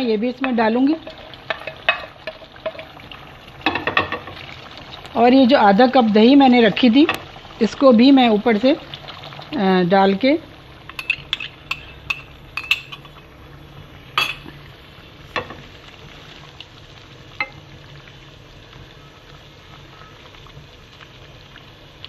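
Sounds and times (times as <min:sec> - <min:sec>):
kebabs sizzling in oil: 0:00.0 - 0:22.0
spoon clinking against pan: 0:11.0 - 0:13.1.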